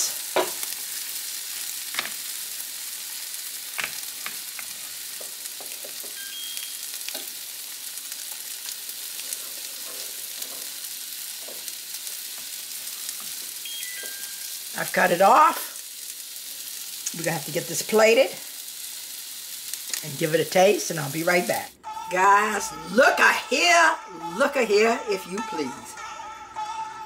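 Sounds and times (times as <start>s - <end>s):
food sizzling on a griddle: 0.0s - 21.9s
griddle control beeps: 6.1s - 7.0s, 13.6s - 14.6s.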